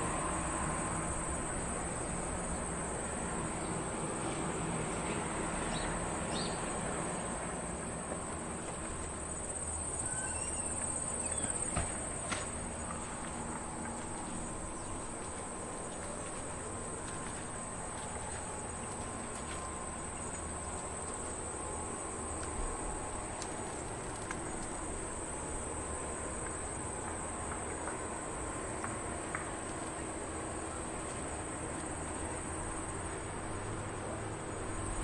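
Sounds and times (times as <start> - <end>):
insects chirring: 0.0 - 35.0
bird chirps: 10.0 - 11.7.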